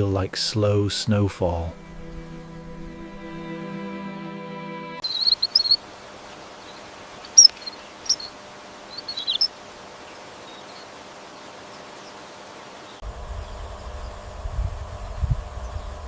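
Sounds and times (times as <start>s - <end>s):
open-air ambience: 0.0s - 16.0s
soft background music: 1.1s - 5.0s
birds chirping: 5.0s - 14.2s.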